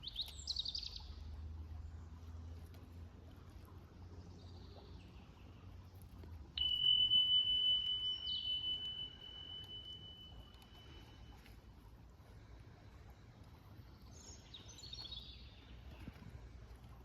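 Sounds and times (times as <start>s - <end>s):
high-pitched pure tone: 6.6s - 11.5s
faint bird chirps: 6.6s - 11.7s.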